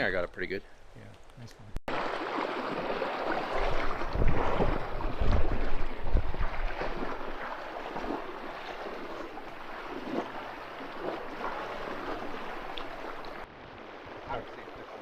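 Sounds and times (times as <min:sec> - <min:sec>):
river water flowing over stones: 0:01.9 - 0:15.0
wind buffeting microphone: 0:03.4 - 0:14.8.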